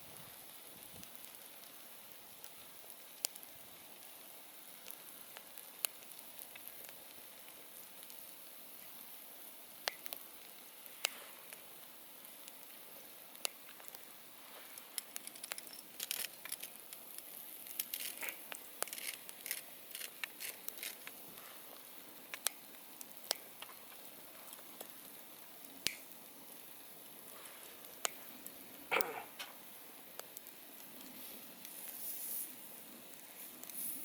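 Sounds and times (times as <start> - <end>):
campfire crackling: 0.0 - 34.0.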